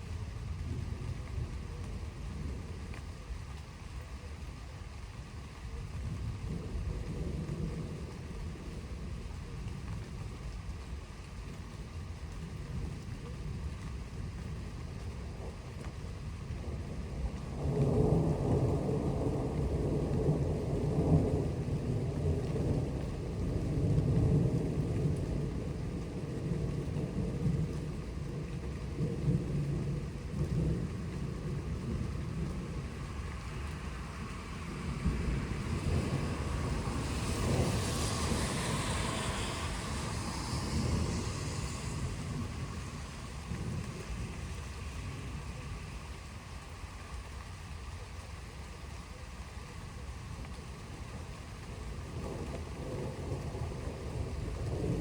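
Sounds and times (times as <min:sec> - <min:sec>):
steady rain: 0:00.0 - 0:55.0
rolling thunder: 0:12.5 - 0:45.8, 0:50.9 - 0:55.0
rushing hiss: 0:37.5 - 0:43.5.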